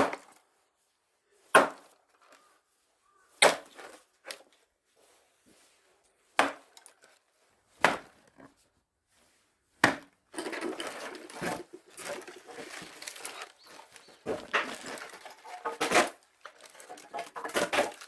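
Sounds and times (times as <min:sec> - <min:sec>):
axe splitting firewood: 0:00.0 - 0:00.4, 0:01.5 - 0:01.9, 0:03.4 - 0:04.4, 0:06.3 - 0:06.9, 0:07.7 - 0:08.6, 0:09.8 - 0:18.0
rustling and clatter: 0:10.3 - 0:18.0.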